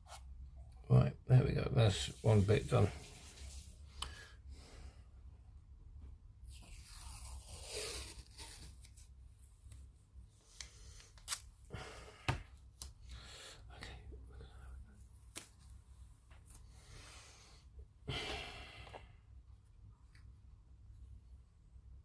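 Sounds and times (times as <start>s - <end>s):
masking tape peeling and tearing: 11.1s - 11.5s.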